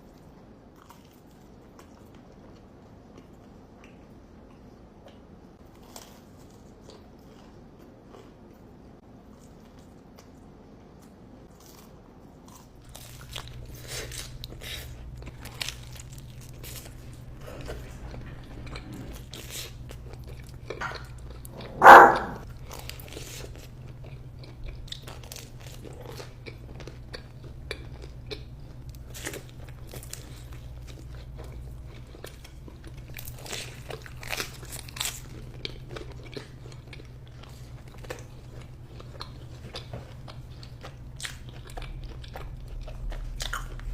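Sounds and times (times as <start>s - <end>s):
person chewing crunchy food: 4.5s - 43.9s
steady low hum: 10.5s - 43.9s.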